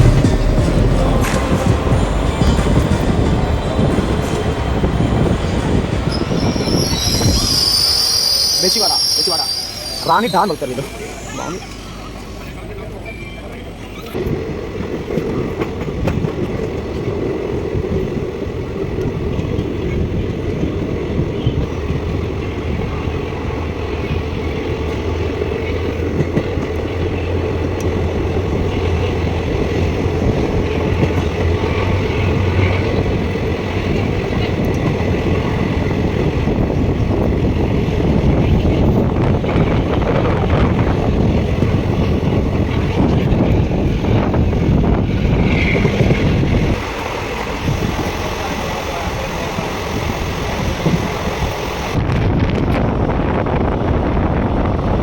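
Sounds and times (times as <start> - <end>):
low hum: 0.0 - 5.6
train wheels on rails: 0.0 - 55.0.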